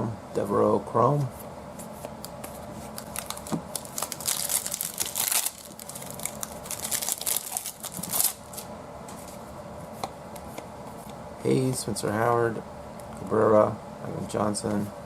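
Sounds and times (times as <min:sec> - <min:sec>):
wrapper tearing and crinkling: 0:02.9 - 0:08.7.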